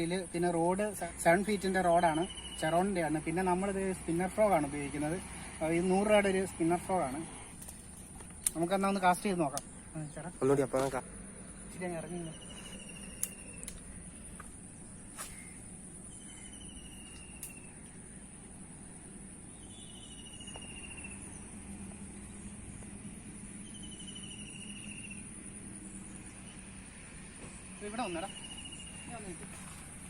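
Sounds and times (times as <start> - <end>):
sharp clicks: 9.5 - 9.8, 13.0 - 14.5, 17.0 - 17.7
high-pitched insect drone: 15.2 - 29.9.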